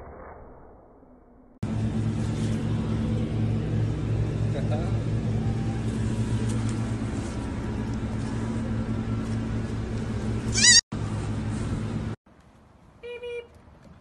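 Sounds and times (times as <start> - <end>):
steady low hum: 1.6 - 12.2
baby goat bleating: 10.5 - 10.8.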